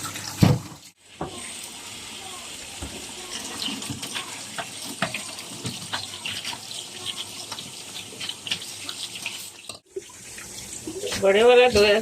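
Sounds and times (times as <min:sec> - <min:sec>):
tap running into sink: 0:00.1 - 0:01.4.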